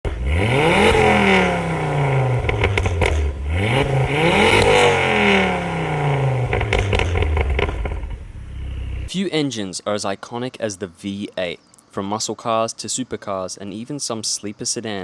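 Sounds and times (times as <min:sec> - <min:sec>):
car engine revving: 0:00.0 - 0:09.1
sharp exhaust cracks: 0:00.1 - 0:09.1.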